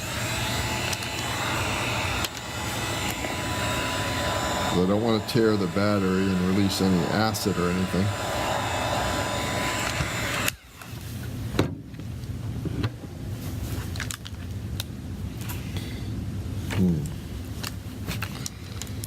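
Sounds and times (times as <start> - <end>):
hot-air blower running: 0.0 - 11.4.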